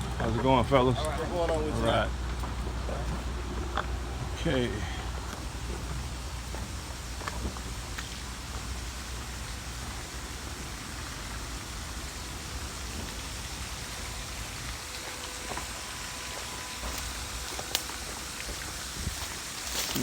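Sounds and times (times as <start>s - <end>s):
spraying water hiss: 0.0s - 20.0s.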